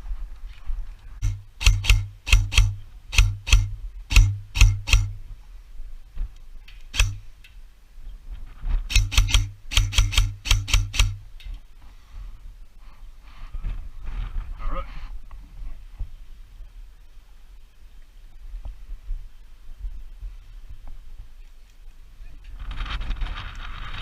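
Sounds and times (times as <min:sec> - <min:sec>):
airsoft gun shots: 0:01.2 - 0:05.2, 0:06.9 - 0:07.3, 0:08.9 - 0:11.3.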